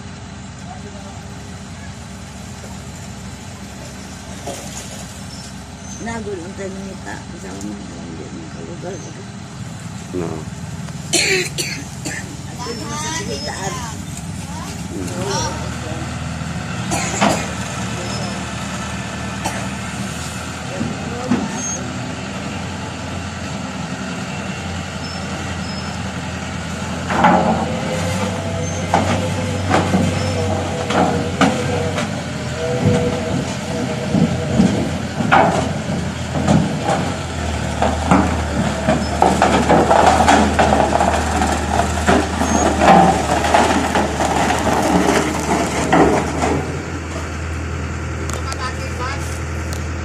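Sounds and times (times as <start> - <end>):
heavy truck engine running: 0.0 - 50.0
metal clanks and rattles: 27.0 - 47.4.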